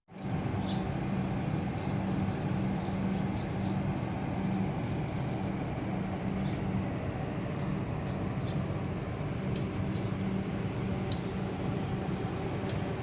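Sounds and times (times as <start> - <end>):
low hum and rumble: 0.1 - 13.0.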